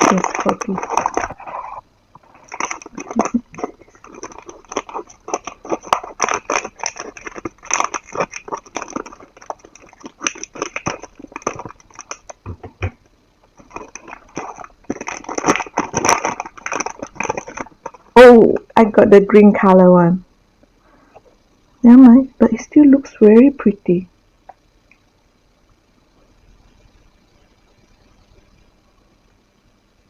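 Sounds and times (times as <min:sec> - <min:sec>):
packaging crackling and rustling: 0:00.0 - 0:18.3.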